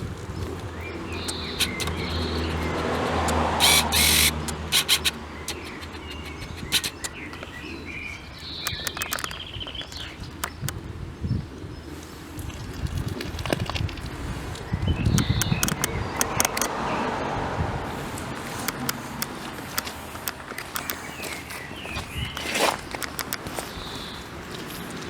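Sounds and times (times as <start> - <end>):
low engine hum: 0.0 - 8.6, 13.8 - 22.3
birds chirping: 0.3 - 12.0, 14.4 - 25.0
scattered clicks: 1.0 - 7.6, 8.4 - 10.8, 15.1 - 16.8, 18.2 - 21.7, 22.3 - 23.8.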